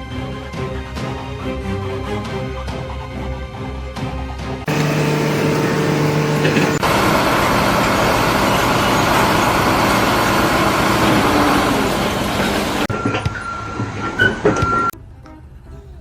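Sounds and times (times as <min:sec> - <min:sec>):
steady hum: 0:04.7 - 0:12.9
heavy machinery running: 0:04.7 - 0:15.0.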